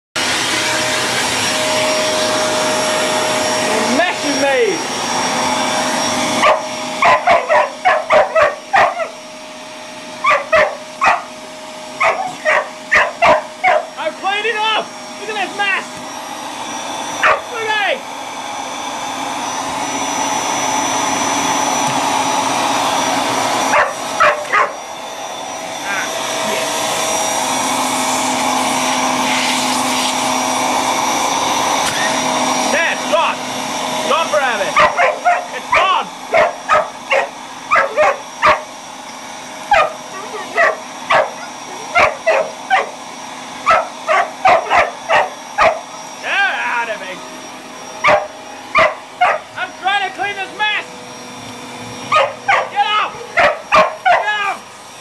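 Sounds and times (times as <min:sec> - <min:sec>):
vacuum cleaner running: 0:00.2 - 0:55.0
dog barking: 0:06.4 - 0:09.1, 0:10.2 - 0:11.3, 0:12.0 - 0:14.0, 0:17.2 - 0:17.5, 0:23.7 - 0:24.8, 0:34.8 - 0:38.6, 0:39.7 - 0:43.0, 0:43.6 - 0:45.9, 0:48.0 - 0:49.5, 0:52.1 - 0:54.3.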